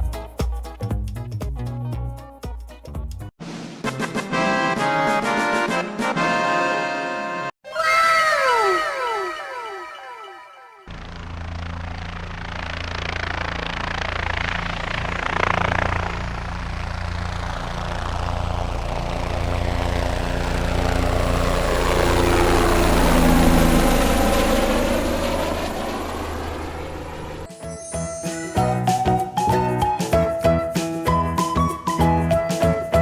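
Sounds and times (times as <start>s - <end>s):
helicopter rotor and engine: 10.9s - 27.9s.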